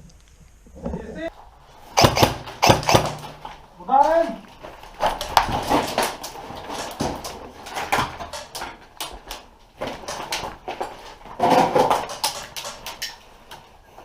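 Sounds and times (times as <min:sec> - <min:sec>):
airsoft guns clicking: 0:02.0 - 0:03.6, 0:12.0 - 0:13.6.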